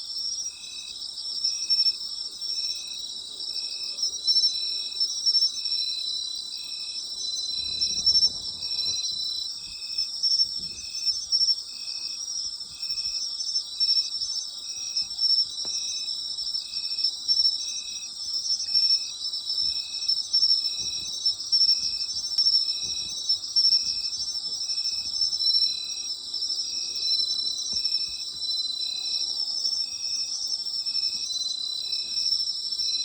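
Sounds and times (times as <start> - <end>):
insect chirping rhythmically: 0.0 - 33.0
insects trilling high: 6.6 - 12.2.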